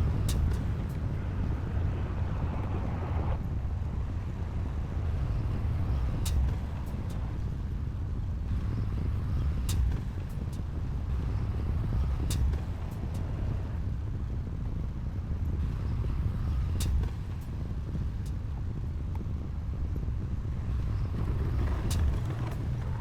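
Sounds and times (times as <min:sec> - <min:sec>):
heavy diesel machinery rumbling: 0:20.7 - 0:23.0.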